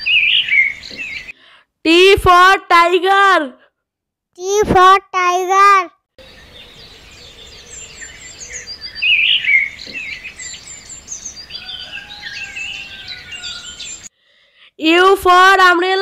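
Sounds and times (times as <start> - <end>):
small birds chirping and trilling: 0.0 - 1.4, 6.2 - 14.1.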